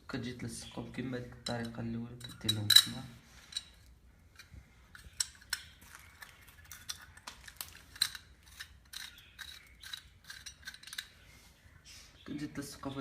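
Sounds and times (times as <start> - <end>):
small metal pieces clicking: 4.4 - 11.1.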